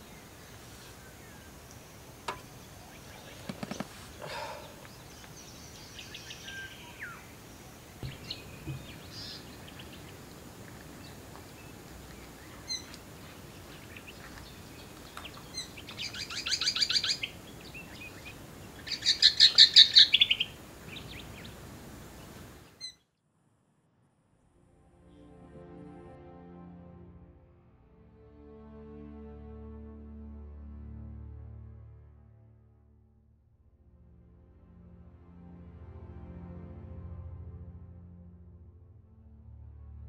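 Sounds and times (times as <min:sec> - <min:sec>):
birds chirping: 0:00.0 - 0:23.1
bird chattering trills: 0:08.0 - 0:10.2, 0:14.8 - 0:21.6.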